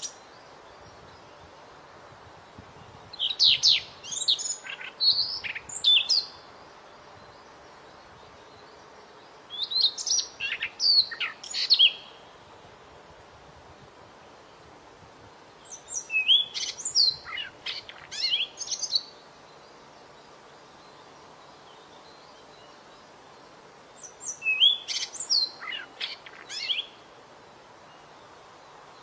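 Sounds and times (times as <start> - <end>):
steady background hiss: 0.0 - 29.0
bird whistling song: 3.1 - 6.4, 9.5 - 12.2, 15.7 - 19.1, 24.0 - 27.0.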